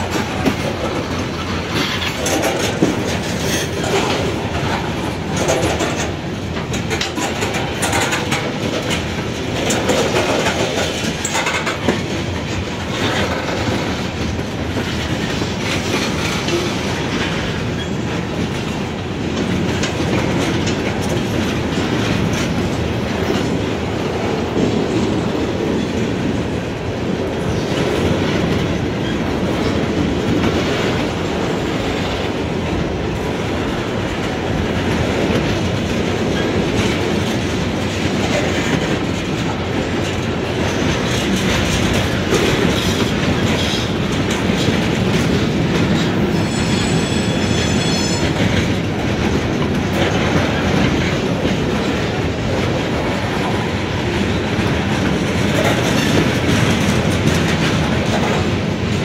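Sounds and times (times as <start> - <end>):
freight train rumble: 0.0 - 59.0
wheels clicking over rail joints: 0.0 - 59.0
high squeal: 46.4 - 48.2.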